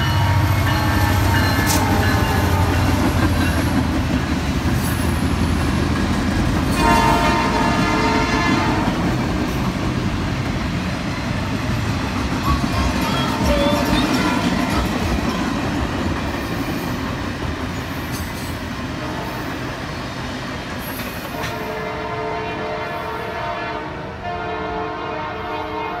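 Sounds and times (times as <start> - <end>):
distant locomotive horn: 0.0 - 3.6, 6.7 - 9.3, 18.9 - 19.9, 21.3 - 26.0
train rumbling past: 0.0 - 26.0.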